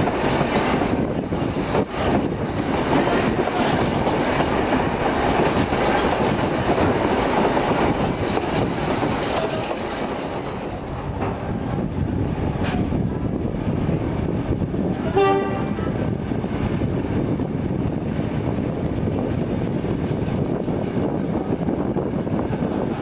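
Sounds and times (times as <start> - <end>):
train carriage rumbling on track: 0.0 - 23.0
locomotive horn toot: 15.1 - 15.9.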